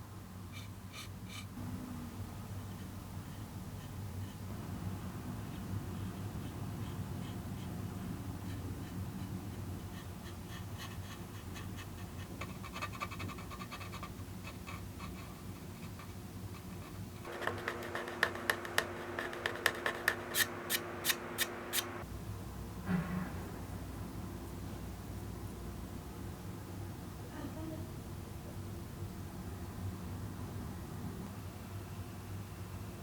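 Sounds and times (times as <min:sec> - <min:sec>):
paintbrush scratching: 0:00.6 - 0:01.5, 0:05.4 - 0:22.0.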